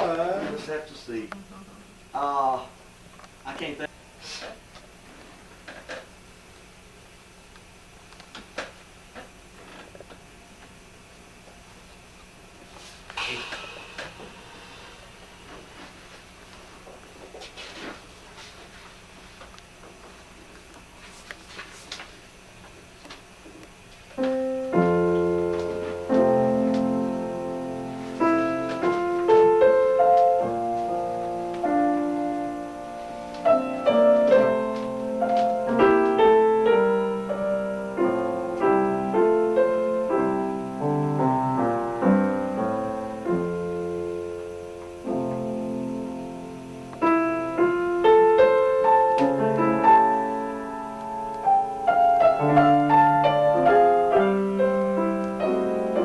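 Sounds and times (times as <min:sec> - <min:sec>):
slow solo piano piece: 0:24.2 - 0:56.0.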